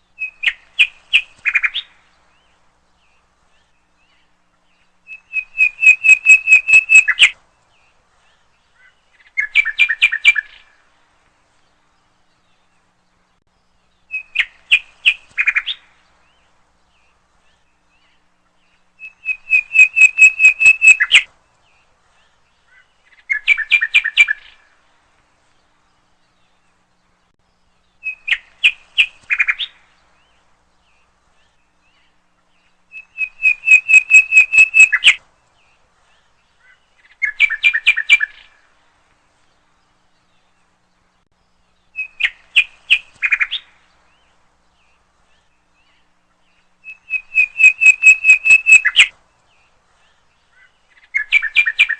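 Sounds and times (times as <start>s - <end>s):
bird calling rapid notes: 5.1s - 7.3s, 19.0s - 21.3s, 32.9s - 35.2s, 46.8s - 49.1s.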